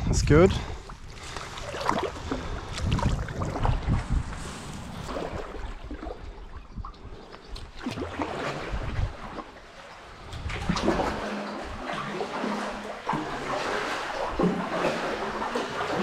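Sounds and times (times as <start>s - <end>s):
kayak paddle splashing water: 0.8s - 6.8s, 7.4s - 16.0s.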